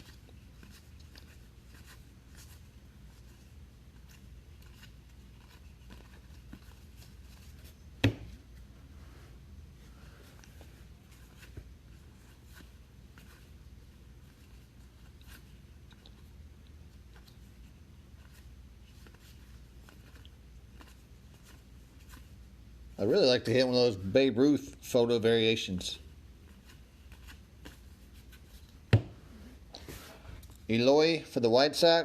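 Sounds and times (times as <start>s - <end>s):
cards rustling: 0.0s - 7.8s, 16.9s - 22.4s.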